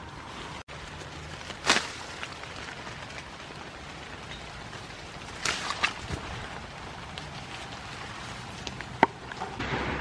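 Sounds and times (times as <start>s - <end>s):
rain on leaves and grass: 0.0s - 10.0s.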